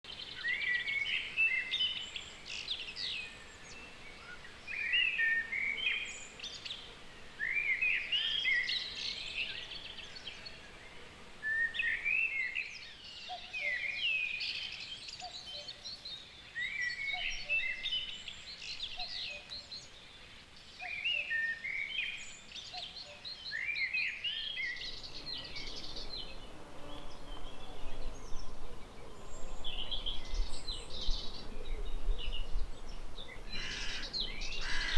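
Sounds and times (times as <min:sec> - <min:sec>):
outdoor background hiss: 0:00.1 - 0:34.9
songbird warbling: 0:11.5 - 0:26.2, 0:33.3 - 0:34.9.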